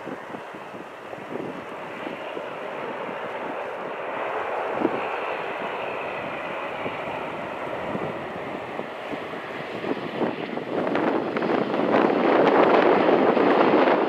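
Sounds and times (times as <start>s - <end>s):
airliner jet engines rushing: 0.0s - 14.0s
wind buffeting microphone: 0.0s - 14.0s.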